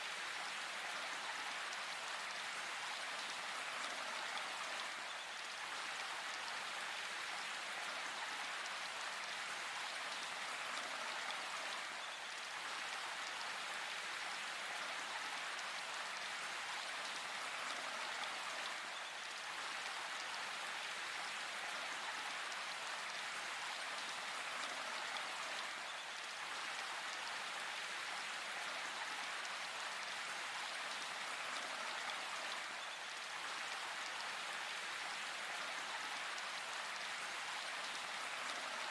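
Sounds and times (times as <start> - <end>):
rain falling in forest: 0.0 - 38.9.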